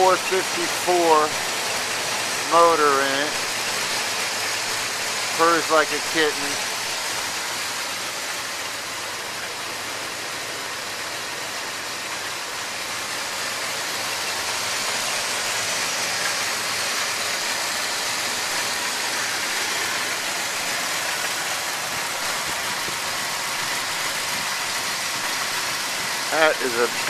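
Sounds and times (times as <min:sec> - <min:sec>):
truck engine idling: 0:00.0 - 0:27.0.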